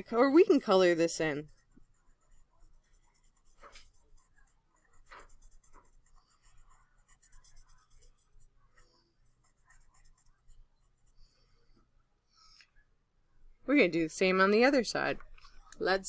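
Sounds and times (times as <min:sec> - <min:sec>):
drawing tool scratching paper: 0:00.1 - 0:11.2.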